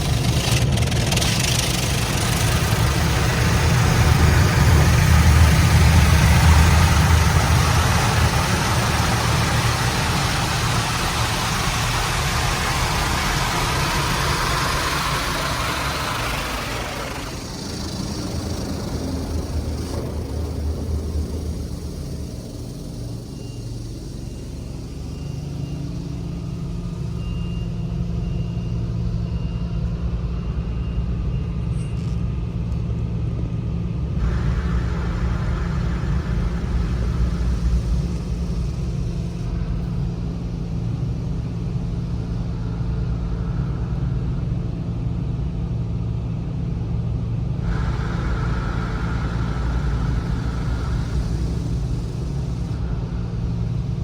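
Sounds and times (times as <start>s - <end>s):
car wash machinery rumbling: 0.0s - 30.9s, 34.0s - 54.0s
water spray hissing: 2.4s - 19.8s, 34.2s - 39.5s, 47.6s - 53.7s.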